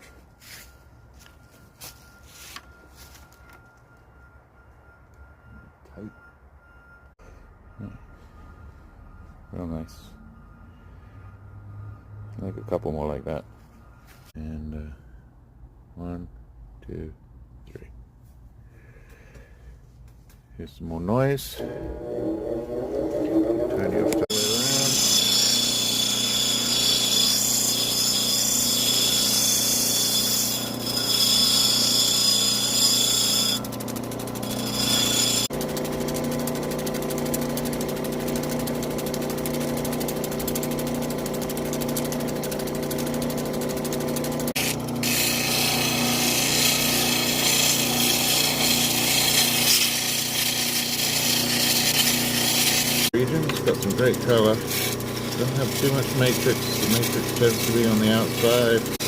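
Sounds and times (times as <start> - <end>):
lapidary machine motor hum: 21.6 - 24.3, 33.6 - 49.0, 53.2 - 59.0
stone grinding hiss: 34.4 - 35.5.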